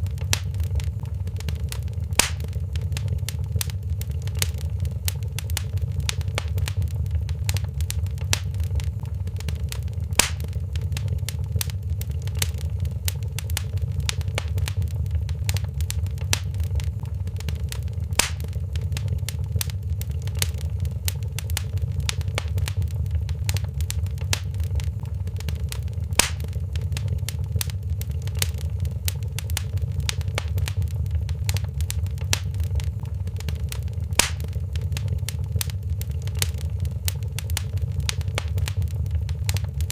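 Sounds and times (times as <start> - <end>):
loud fire pops: 0.0 - 39.9
wood fire crackling: 0.0 - 39.9.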